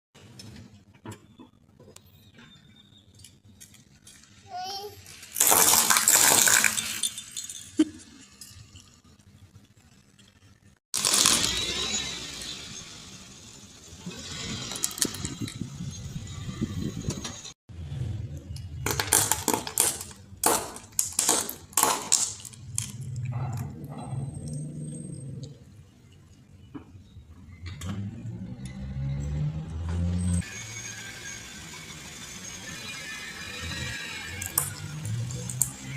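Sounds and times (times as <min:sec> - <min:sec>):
objects crunched under car tyre: 0:05.2 - 0:07.1, 0:11.0 - 0:12.4
objects crunching under car tyres: 0:11.0 - 0:12.3.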